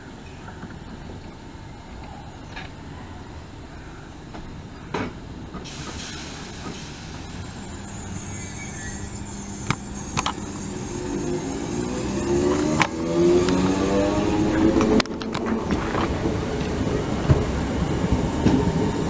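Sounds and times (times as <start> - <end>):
train rumbling: 5.4 - 19.0.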